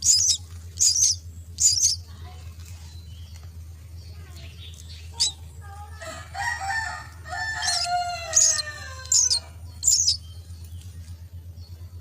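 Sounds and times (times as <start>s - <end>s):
shrill bird chirps: 0.0s - 2.2s, 4.0s - 5.6s, 7.3s - 11.0s
low steady hum: 0.0s - 12.0s
rooster crowing: 6.0s - 9.6s.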